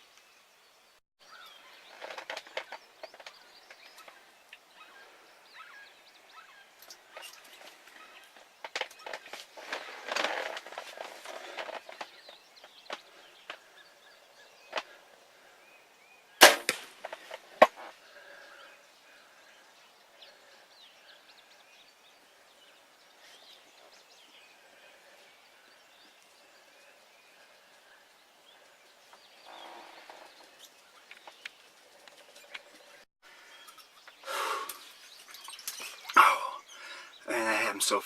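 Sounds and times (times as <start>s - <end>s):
faint bird calls: 1.2s - 37.8s
sharp crack: 16.4s - 17.9s.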